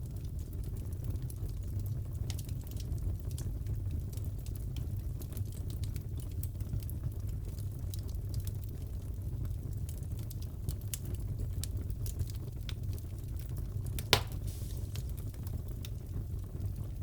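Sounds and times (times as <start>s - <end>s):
fireplace crackling: 12.8s - 16.7s
loud fire pop: 14.0s - 15.2s.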